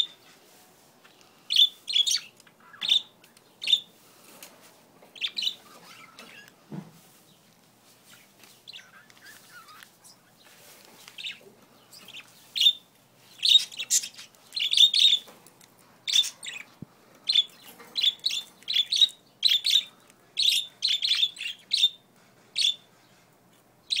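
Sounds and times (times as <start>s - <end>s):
budgerigars chirping: 1.5s - 3.9s, 5.1s - 6.6s, 8.0s - 10.6s, 11.2s - 15.3s, 16.0s - 22.0s, 22.6s - 22.9s.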